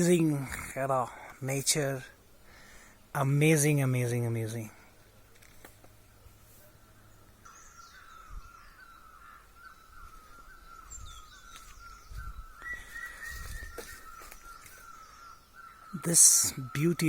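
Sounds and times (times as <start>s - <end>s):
high bird chirps: 7.4s - 17.0s.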